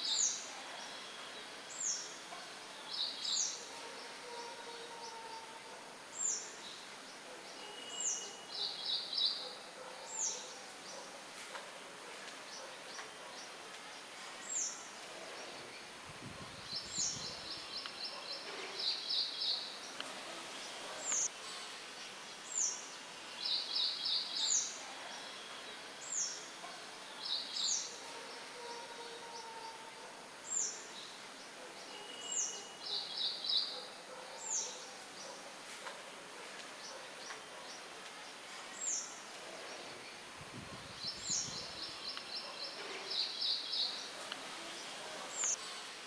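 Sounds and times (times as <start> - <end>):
songbirds calling: 12.4 - 21.3, 36.5 - 45.6
wind rustling leaves: 13.8 - 27.9, 37.8 - 46.0.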